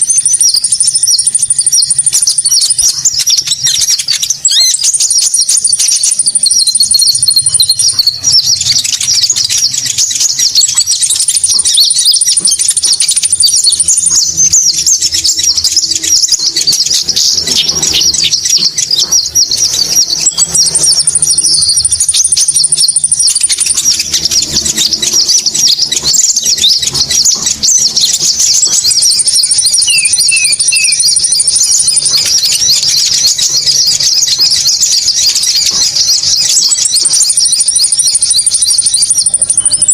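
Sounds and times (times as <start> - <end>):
chattering birdsong: 0.0 - 39.9
thin even bird trill: 4.5 - 34.4.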